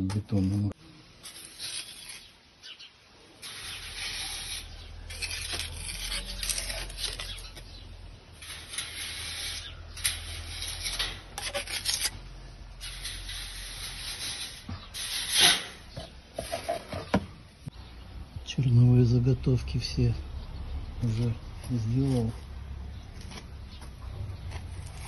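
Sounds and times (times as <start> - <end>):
trowel scraping wet mortar: 1.2 - 2.4, 3.4 - 7.8, 8.4 - 17.1.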